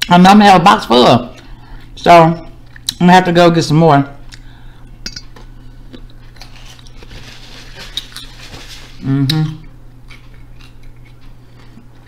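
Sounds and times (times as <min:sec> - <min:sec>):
person chewing: 0:02.6 - 0:03.0, 0:04.2 - 0:12.0
person humming: 0:09.0 - 0:09.7.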